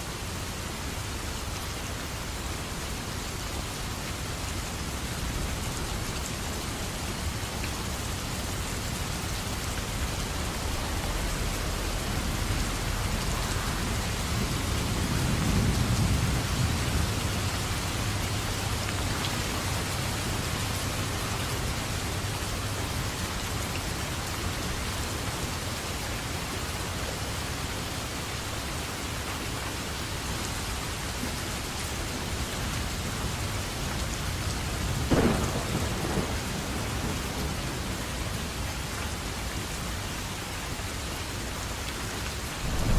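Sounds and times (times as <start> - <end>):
steady rain: 0.0 - 42.9
thunder rumbling: 9.8 - 21.8, 34.9 - 38.6, 42.6 - 42.9
sharp thunderclap: 35.1 - 37.7, 42.6 - 42.9.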